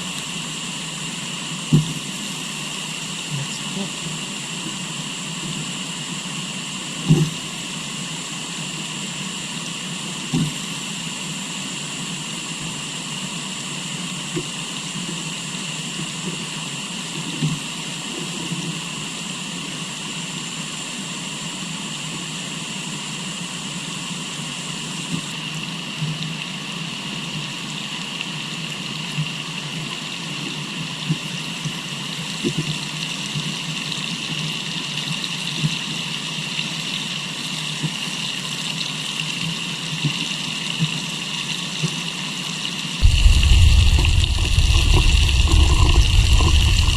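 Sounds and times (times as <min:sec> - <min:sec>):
high-pitched whine: 0:43.0 - 0:46.9
river water flowing: 0:43.0 - 0:46.9.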